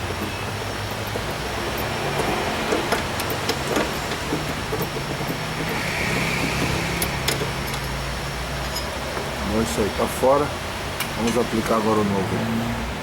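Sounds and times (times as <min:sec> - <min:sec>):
tools clicking and knocking: 0:00.0 - 0:08.0, 0:08.6 - 0:09.3.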